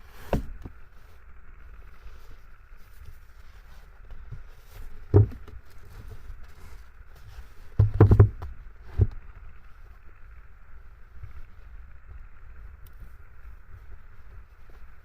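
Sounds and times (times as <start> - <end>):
dull knocks and thumps: 4.1 - 6.6, 7.2 - 9.2.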